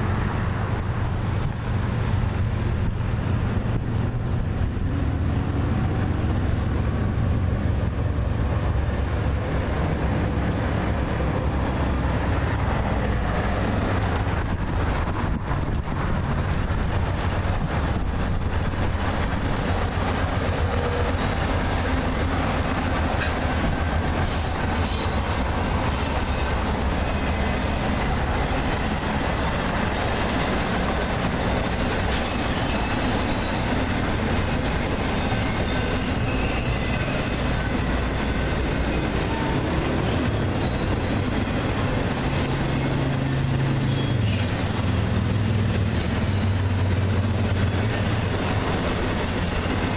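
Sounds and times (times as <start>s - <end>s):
train wheels clattering over rails: 0.6s - 49.9s
faint high wheel squeal: 35.0s - 39.6s, 41.9s - 47.2s.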